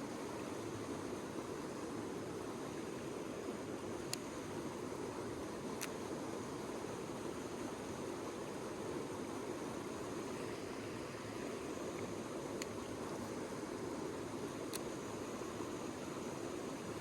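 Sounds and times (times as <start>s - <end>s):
faint click: 4.1s - 4.3s, 11.9s - 13.2s, 14.7s - 14.9s.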